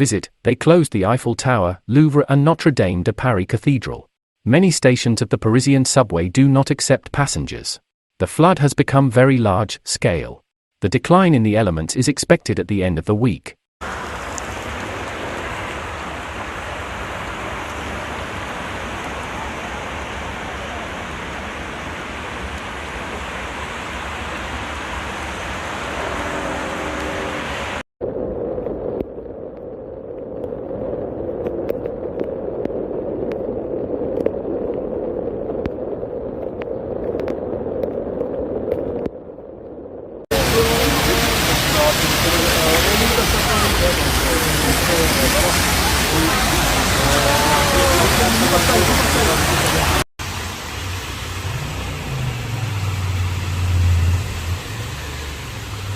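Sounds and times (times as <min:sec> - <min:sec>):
floodwater rushing: 0:13.8 - 0:27.8, 0:40.3 - 0:55.9.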